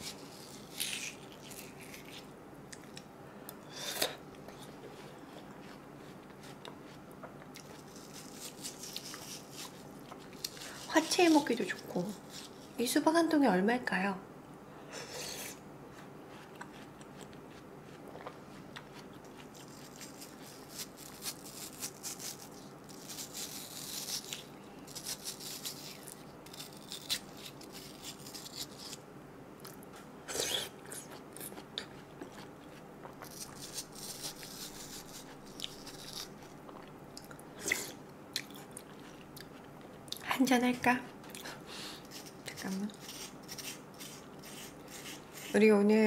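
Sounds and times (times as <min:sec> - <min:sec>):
wet chewing of watermelon: 0:04.4 - 0:11.4, 0:15.9 - 0:24.4, 0:29.6 - 0:40.2.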